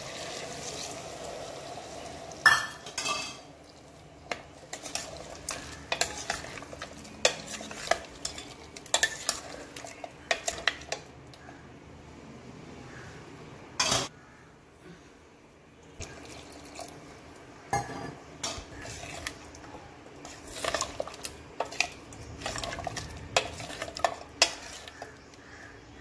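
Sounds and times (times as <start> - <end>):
ladle knocking and scraping pot: 4.2 - 11.1, 17.8 - 19.5, 20.2 - 25.3.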